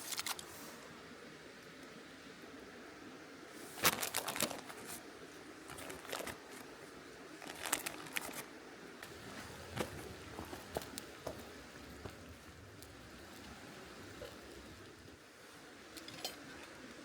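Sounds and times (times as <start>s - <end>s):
rustling: 3.6s - 17.0s.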